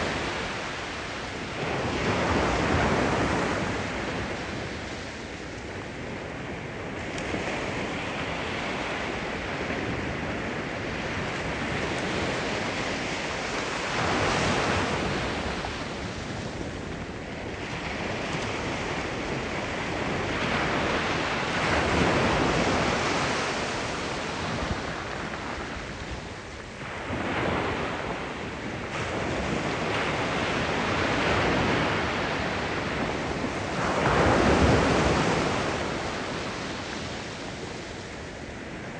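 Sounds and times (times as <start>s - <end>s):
sea waves breaking on shore: 0.0s - 38.9s
wind buffeting microphone: 0.0s - 38.9s.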